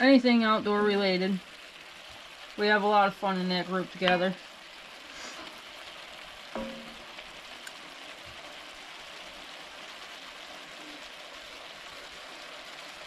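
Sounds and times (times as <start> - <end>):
mushrooms sizzling in a pot: 0.0 - 13.0
short knock with ring: 6.6 - 7.0.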